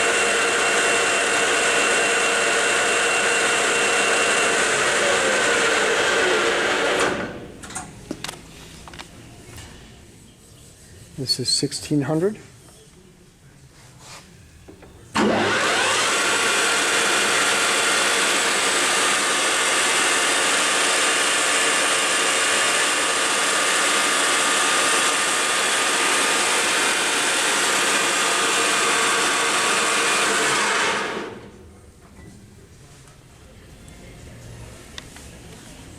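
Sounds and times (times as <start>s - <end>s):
lathe spindle whining: 0.0s - 7.4s, 14.7s - 31.5s.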